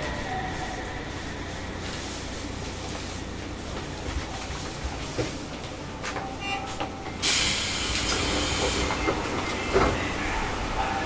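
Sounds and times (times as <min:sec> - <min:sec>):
train equipment hum: 0:00.0 - 0:11.0
loud air hiss: 0:07.2 - 0:09.0.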